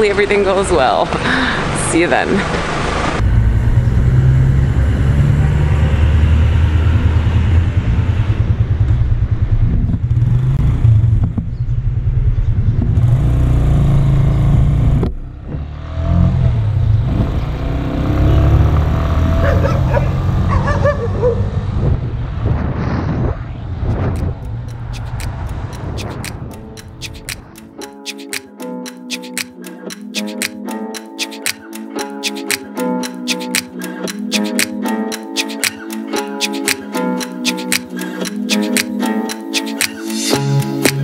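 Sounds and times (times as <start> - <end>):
motorcycle engine revving: 3.2 - 22.4.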